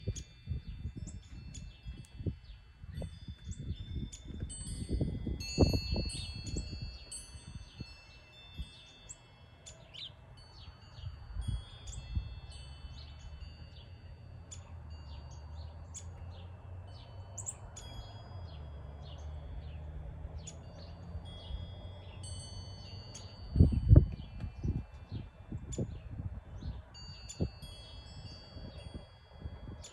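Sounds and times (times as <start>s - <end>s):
wind chimes ringing: 0.0s - 29.9s
bird chirps: 6.2s - 29.1s.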